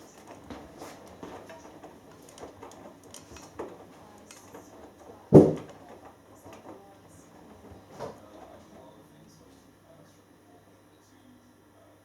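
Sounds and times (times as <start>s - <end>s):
washing machine drum sloshing: 0.0s - 8.9s
washing machine low hum: 0.0s - 12.0s.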